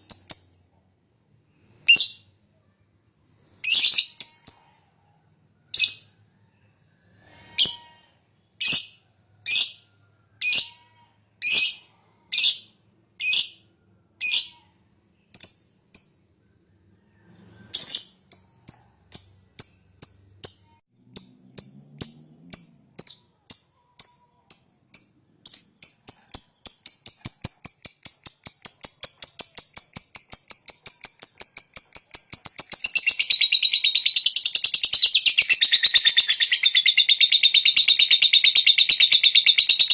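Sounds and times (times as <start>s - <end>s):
lovebird chattering: 0.0s - 0.5s, 17.8s - 39.9s
lovebird shrill calls: 27.1s - 39.9s.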